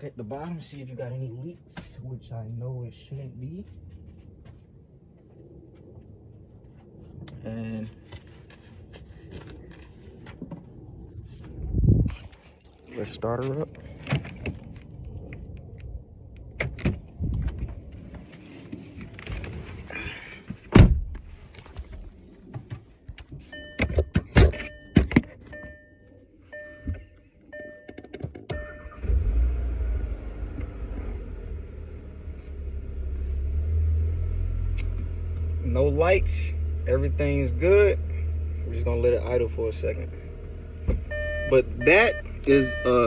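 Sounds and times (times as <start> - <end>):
car engine starting and idling: 23.4 - 43.0
dashboard chime beeping: 23.5 - 29.0, 41.1 - 43.0.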